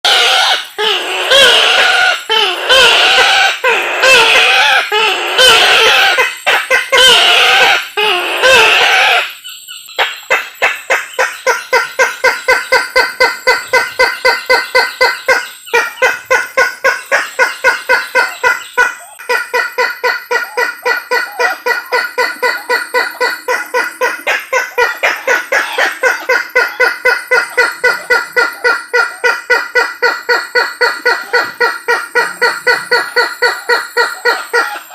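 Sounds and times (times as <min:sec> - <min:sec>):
waterhen calling: 0:10.0 - 0:34.9.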